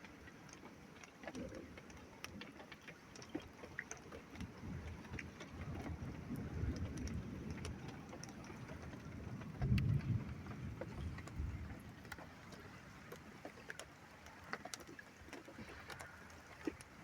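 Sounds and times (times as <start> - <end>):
rain ticks: 0.0 - 17.0
low rolling thunder: 9.1 - 11.8.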